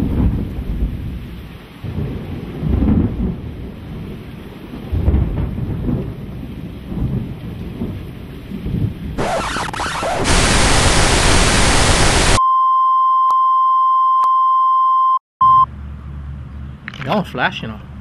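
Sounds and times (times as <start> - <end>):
rain: 0.0 - 12.4
thunder rumbling: 0.0 - 12.4
static hiss: 9.2 - 12.4.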